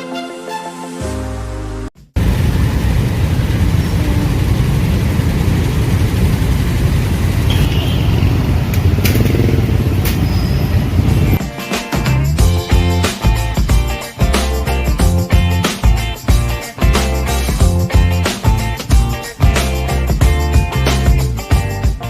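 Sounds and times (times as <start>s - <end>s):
intro music: 0.0s - 2.3s, 11.2s - 22.0s
motorbikes and cars passing: 2.2s - 11.4s.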